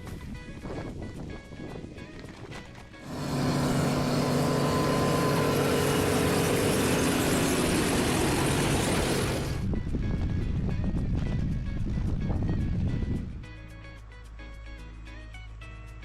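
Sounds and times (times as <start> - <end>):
vehicle engine running: 2.8 - 9.7.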